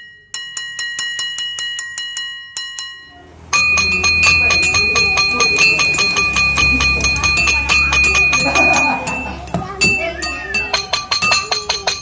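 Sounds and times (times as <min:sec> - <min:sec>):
spoon tapping ceramic bowl: 0:03.5 - 0:12.0.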